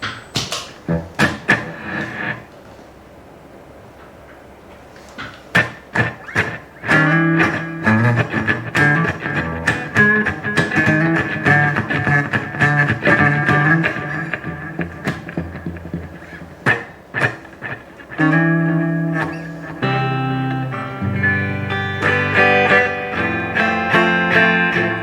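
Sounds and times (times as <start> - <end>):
low amp hum: 0.8 - 4.3, 5.6 - 25.0
electric guitar notes and chords: 0.9 - 2.5, 5.6 - 25.0.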